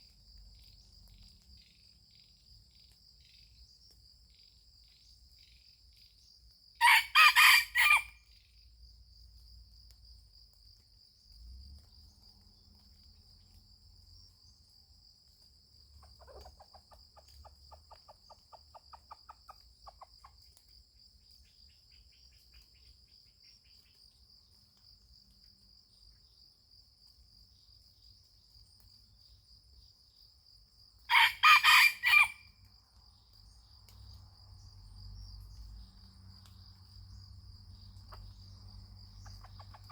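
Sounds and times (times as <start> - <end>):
rooster crowing: 6.8 - 8.2, 31.1 - 32.5.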